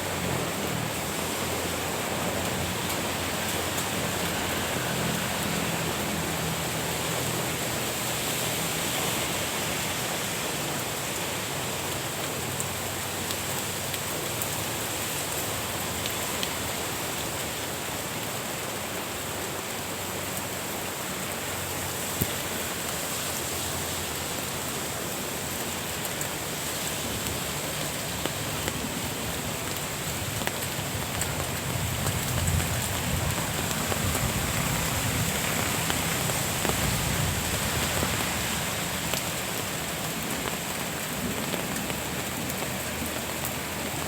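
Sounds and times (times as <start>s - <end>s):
steady rain falling: 0.0s - 44.0s
raindrop ticks: 27.1s - 44.0s.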